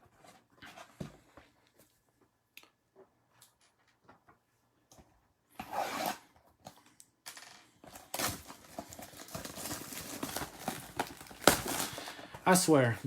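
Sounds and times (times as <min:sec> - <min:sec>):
cards and plastic holders rustling: 0:06.7 - 0:13.0.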